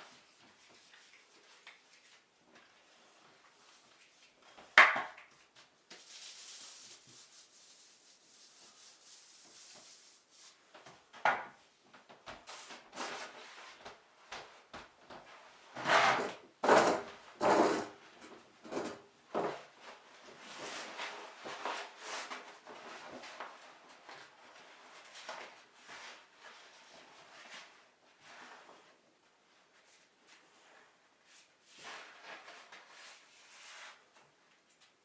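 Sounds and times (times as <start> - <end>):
rubbing and rustling: 5.3 - 10.8.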